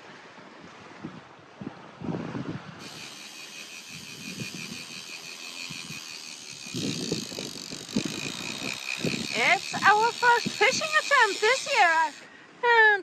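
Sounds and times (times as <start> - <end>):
low wind: 0.0 - 13.0
fishing reel clicker ratcheting: 2.8 - 12.2.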